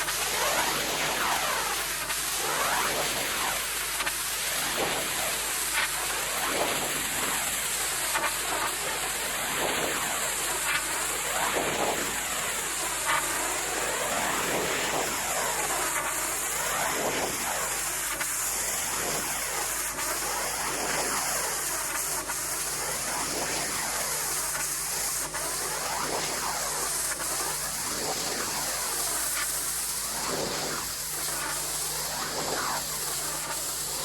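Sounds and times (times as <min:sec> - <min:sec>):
pressure washer spraying: 0:21.0 - 0:34.0.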